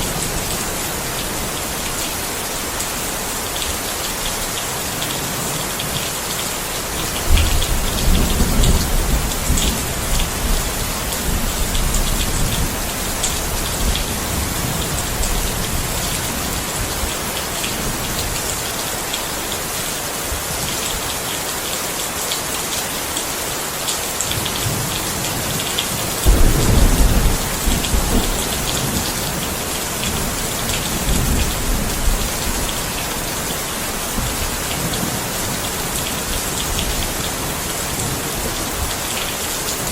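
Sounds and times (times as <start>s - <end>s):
heavy rain: 0.0s - 39.9s
thunder rumbling: 26.2s - 33.2s.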